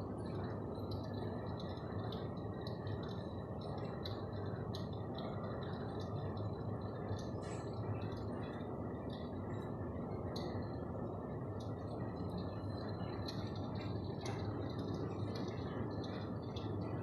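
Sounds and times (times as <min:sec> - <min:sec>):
electric fireplace whirring: 0:00.0 - 0:17.0
light crackling clicks: 0:00.3 - 0:10.8, 0:11.5 - 0:17.0.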